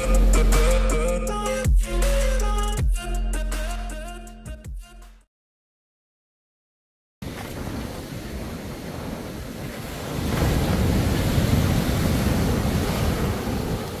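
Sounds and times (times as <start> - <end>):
ocean surf: 7.2 - 14.0
wind buffeting microphone: 7.2 - 14.0.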